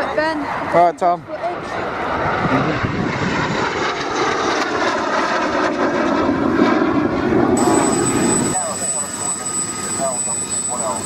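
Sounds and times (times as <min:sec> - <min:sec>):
aircraft engine roar passing: 0:00.0 - 0:11.0.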